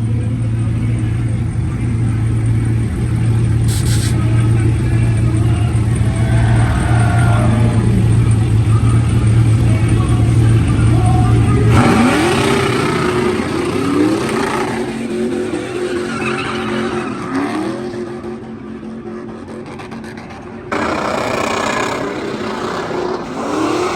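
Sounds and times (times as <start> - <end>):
car engines revving: 0.0 - 23.9
tyre squeal: 5.9 - 8.2, 15.4 - 17.6.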